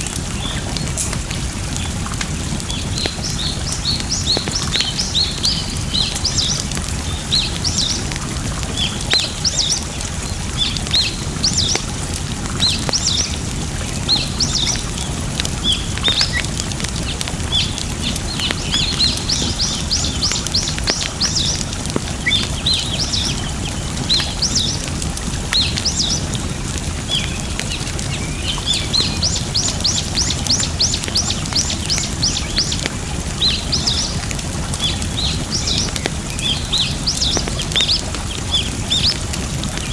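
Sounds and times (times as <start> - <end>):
campfire crackling: 0.0 - 39.9
flowing water: 0.0 - 39.9
small birds chirping: 0.0 - 39.9.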